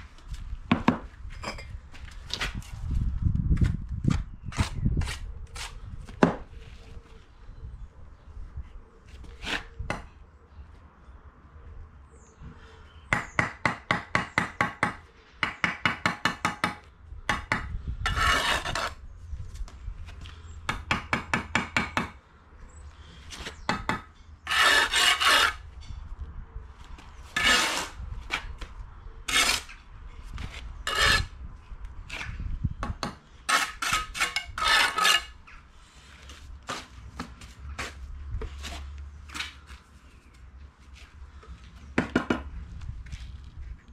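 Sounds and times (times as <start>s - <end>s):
trowel blade scraping brick: 18.1s - 19.0s, 24.4s - 25.6s, 27.3s - 28.5s, 29.3s - 29.8s, 30.4s - 31.4s, 33.4s - 35.4s
trowel strokes on mortar: 24.5s - 25.6s, 27.4s - 28.0s, 30.9s - 31.3s, 33.5s - 35.3s.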